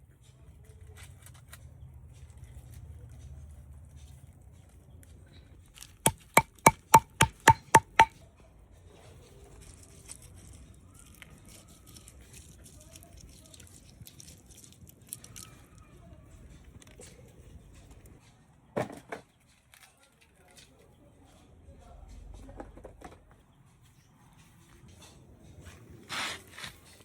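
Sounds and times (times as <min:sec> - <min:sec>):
knife chopping on board: 0:06.1 - 0:08.1.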